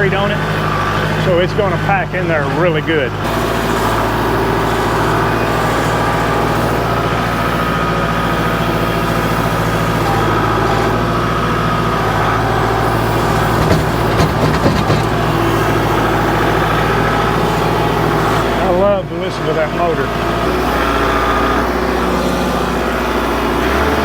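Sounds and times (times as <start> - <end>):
diesel tractor engine running: 0.0 - 24.0
knocks: 12.0 - 17.0.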